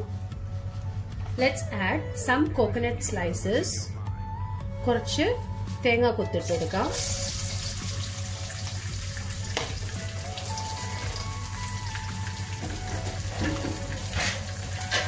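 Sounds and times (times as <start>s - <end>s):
coconut frying in oil: 6.8s - 15.0s.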